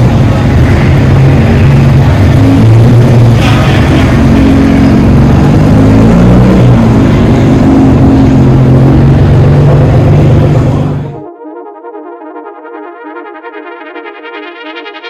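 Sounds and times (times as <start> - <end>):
car engine and exhaust drone: 0.0 - 11.3.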